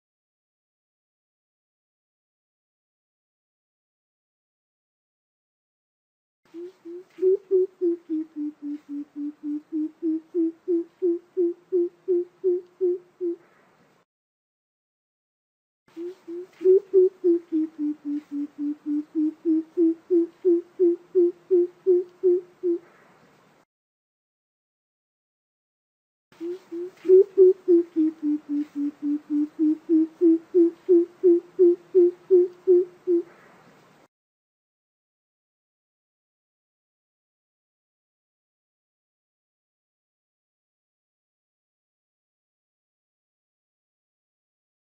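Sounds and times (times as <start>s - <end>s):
bird deep hooting: 6.6s - 13.5s, 16.0s - 23.0s, 26.4s - 33.4s
coucal deep hooting call: 26.4s - 33.3s.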